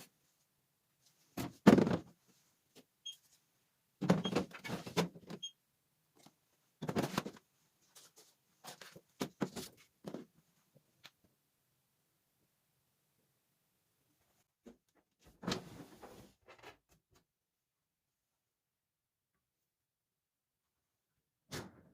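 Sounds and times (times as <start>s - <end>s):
objects knocking and clattering: 1.4s - 2.2s.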